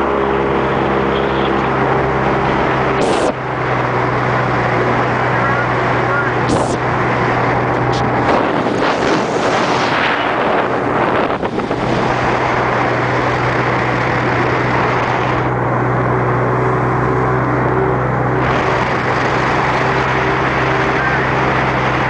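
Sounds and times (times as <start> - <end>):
boat engine humming: 0.0 - 22.0
rush of noise: 0.0 - 22.0
wind buffeting microphone: 0.2 - 15.6.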